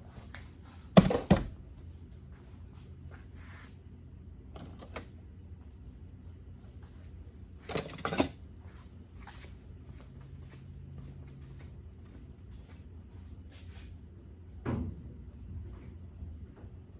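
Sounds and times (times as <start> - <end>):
knocks and clanks: 1.0 - 1.6.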